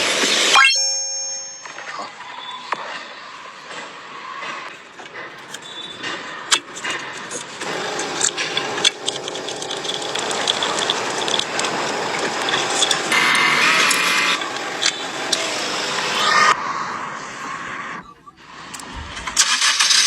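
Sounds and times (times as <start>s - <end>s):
sharp mechanical clicks: 5.0s - 16.5s
engine running: 6.7s - 16.6s.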